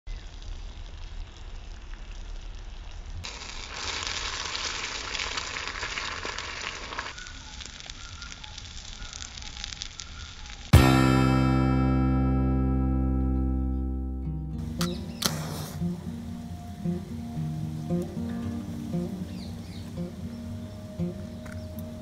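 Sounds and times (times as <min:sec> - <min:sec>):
food sizzling on griddle: 0:00.1 - 0:10.9
fire crackling: 0:00.1 - 0:12.7, 0:14.5 - 0:22.0
guitar chord strummed: 0:10.8 - 0:22.0.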